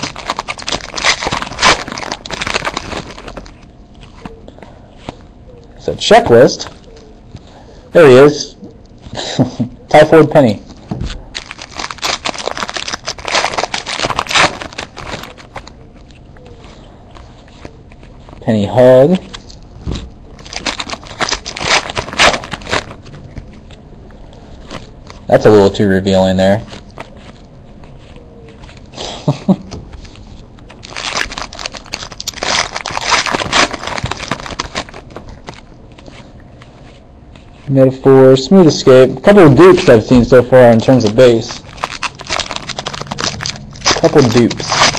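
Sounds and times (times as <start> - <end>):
cards being flipped through: 0.0 - 4.4, 10.7 - 23.8, 26.6 - 28.9, 29.7 - 37.7, 39.6 - 44.9.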